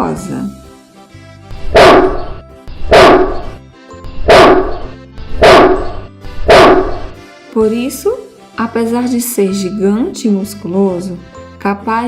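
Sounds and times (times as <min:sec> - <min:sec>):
background music: 0:00.0 - 0:12.0
dog barking: 0:01.8 - 0:02.2, 0:02.9 - 0:03.5, 0:04.3 - 0:04.8, 0:05.4 - 0:05.9, 0:06.5 - 0:07.0.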